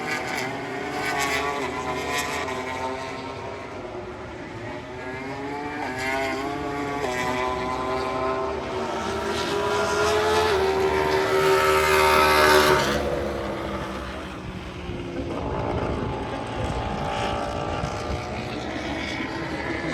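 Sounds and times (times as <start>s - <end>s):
race motorcycle engine passing: 0.0s - 19.9s.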